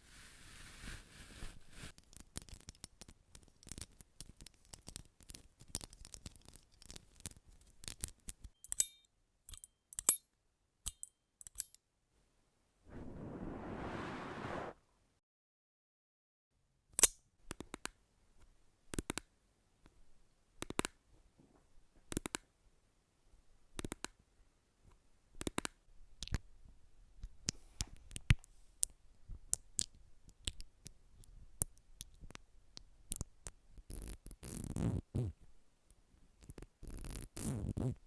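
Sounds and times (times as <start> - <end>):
soft rustle: 0.0 - 2.0, 12.9 - 14.8.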